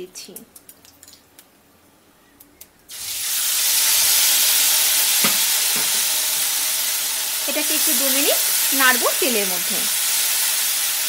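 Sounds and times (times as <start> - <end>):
paste sizzling in hot oil: 2.9 - 11.0.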